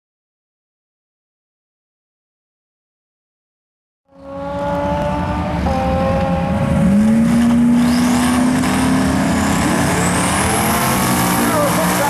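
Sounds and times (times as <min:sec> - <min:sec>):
race car engine: 0:04.1 - 0:12.0.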